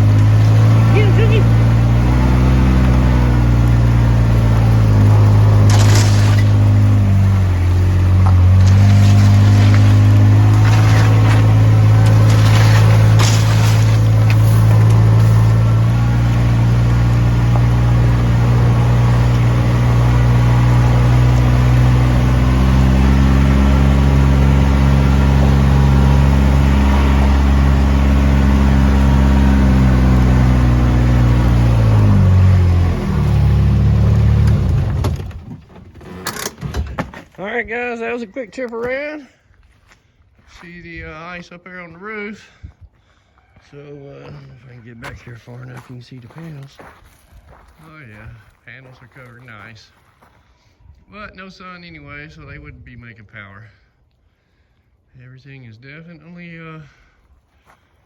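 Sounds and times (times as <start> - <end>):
vehicle engine running: 0.0 - 37.6.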